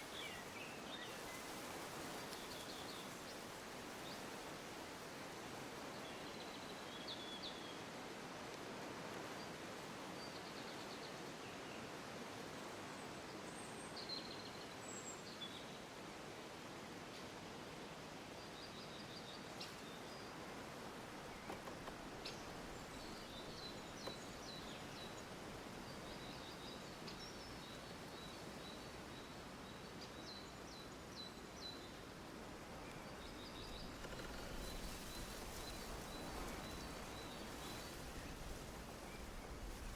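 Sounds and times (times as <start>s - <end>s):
faint birdsong chirps and trills: 0.0s - 4.8s, 5.5s - 8.0s, 18.2s - 39.9s
steady hiss: 19.5s - 39.9s.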